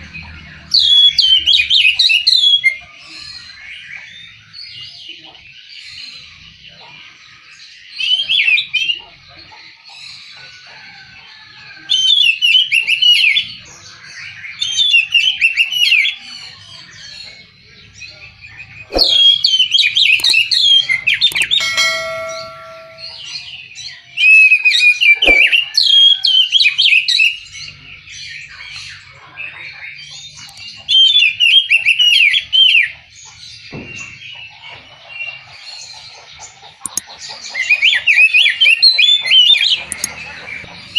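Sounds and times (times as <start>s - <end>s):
bird warbling song: 17.2s - 23.4s
sharp clicks: 21.3s - 21.8s, 39.8s - 40.1s
brief steady tone: 21.3s - 23.2s, 25.2s - 25.5s.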